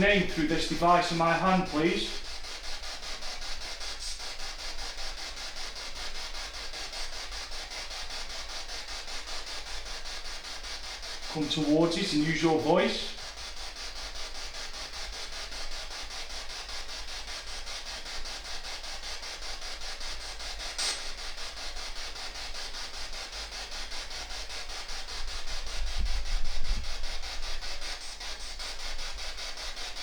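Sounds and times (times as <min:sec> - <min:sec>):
fluttering radio static: 0:00.0 - 0:04.8, 0:11.2 - 0:13.3, 0:24.6 - 0:30.0
sharp click: 0:20.8 - 0:21.1.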